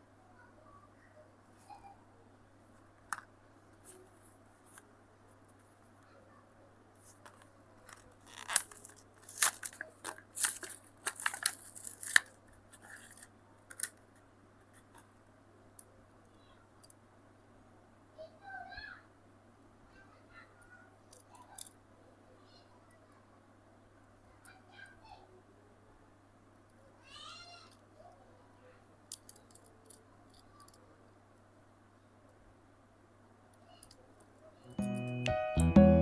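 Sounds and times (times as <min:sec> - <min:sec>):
blister packaging being torn: 0:07.9 - 0:14.0.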